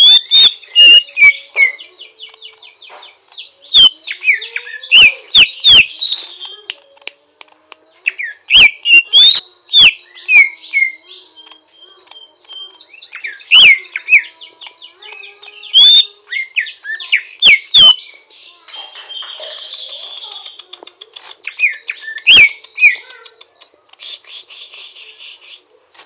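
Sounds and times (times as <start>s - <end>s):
bird twittering with whistled notes: 0.0s - 6.7s, 8.1s - 20.5s, 21.5s - 23.1s.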